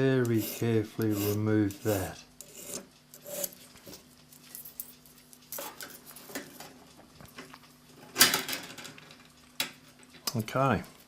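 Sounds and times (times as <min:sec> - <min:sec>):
hand file strokes on steel: 0:00.0 - 0:03.7.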